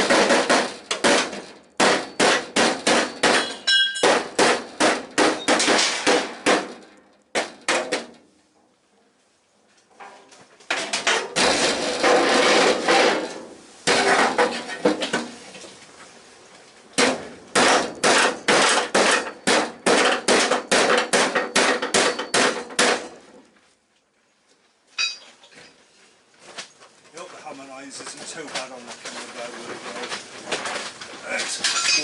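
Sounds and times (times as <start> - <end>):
hammer striking steel panel: 0.0 - 8.2, 17.0 - 23.2.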